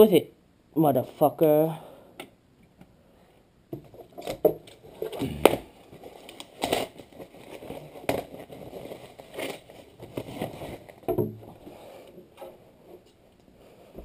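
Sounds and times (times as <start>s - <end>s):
packaging crackles: 5.2s - 11.0s.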